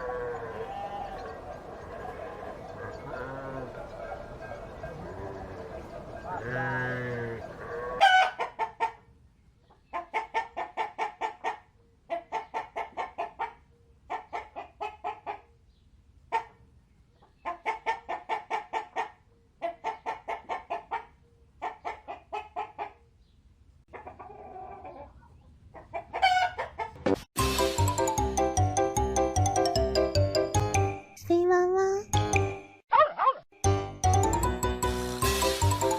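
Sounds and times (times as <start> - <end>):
loud hen call: 0.0 - 9.0, 26.0 - 27.0
hen clucking: 0.0 - 15.6, 17.2 - 23.1, 23.9 - 27.1.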